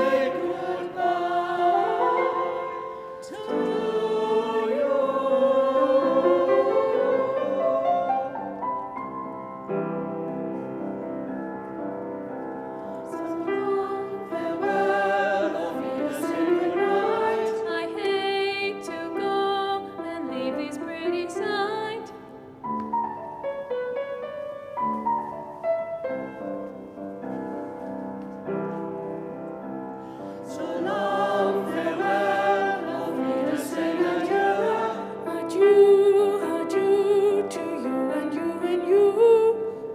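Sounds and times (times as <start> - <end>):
choir singing: 0.0 - 8.9, 13.1 - 22.2, 30.4 - 39.8
piano accompaniment: 0.0 - 39.9.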